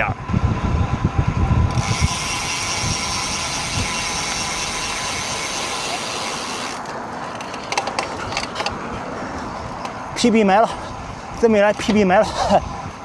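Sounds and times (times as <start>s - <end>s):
bicycle freehub ratcheting: 1.7s - 6.8s.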